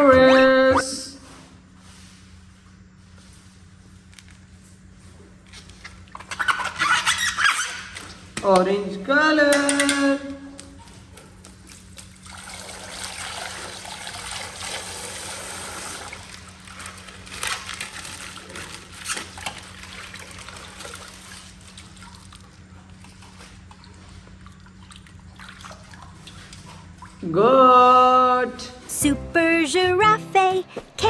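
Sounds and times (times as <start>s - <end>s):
water trickling from plastic bag: 10.6s - 27.3s.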